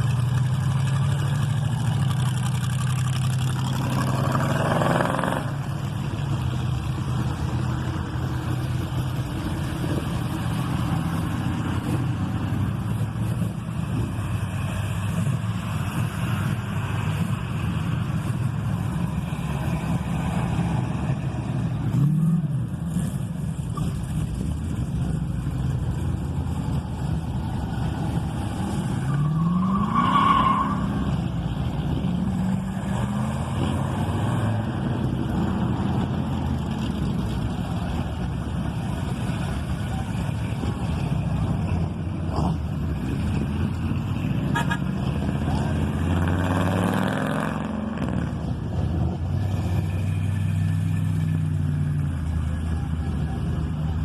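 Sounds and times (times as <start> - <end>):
car engines running: 0.0 - 54.0
car horn toot: 44.5 - 44.9.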